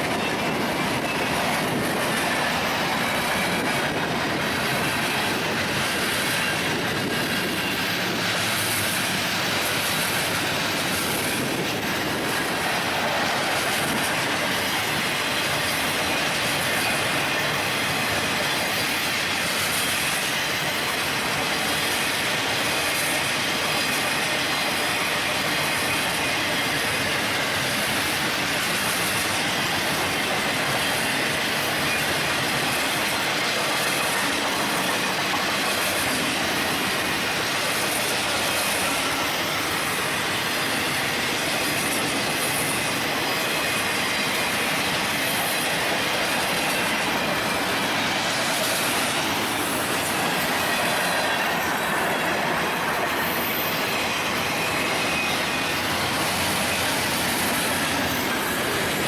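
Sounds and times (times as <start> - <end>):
train wheels rumbling and rattling: 0.0 - 59.0
pulsing high hiss: 0.1 - 59.0.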